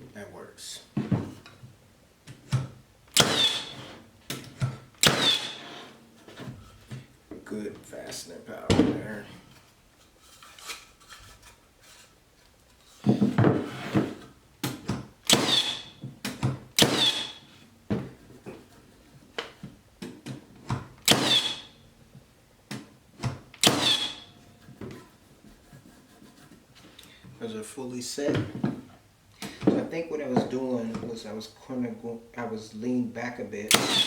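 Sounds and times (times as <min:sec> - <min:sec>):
nail gun shots with metallic ring: 0:33.7 - 0:34.0.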